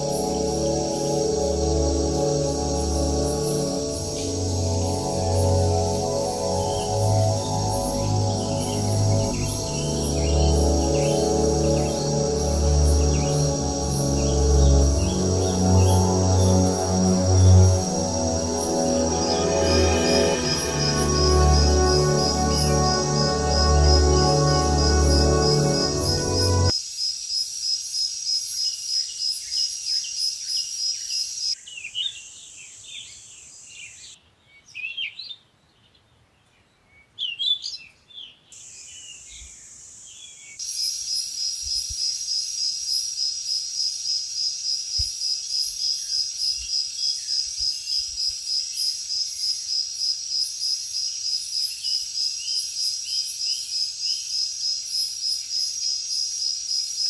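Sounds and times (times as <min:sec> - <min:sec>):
insect chorus pulsing: 0:00.0 - 0:26.7.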